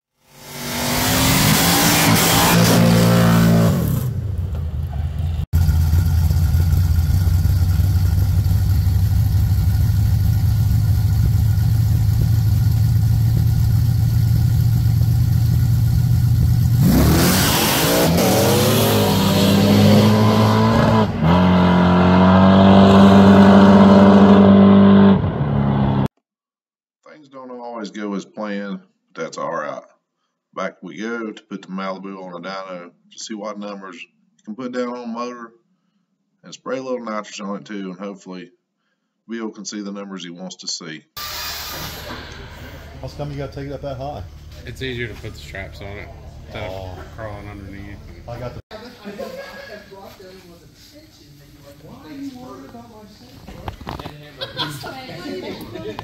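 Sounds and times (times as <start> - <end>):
car engine revving: 0.3 - 26.1, 41.3 - 48.6
race cars accelerating: 0.4 - 4.2, 16.8 - 26.1.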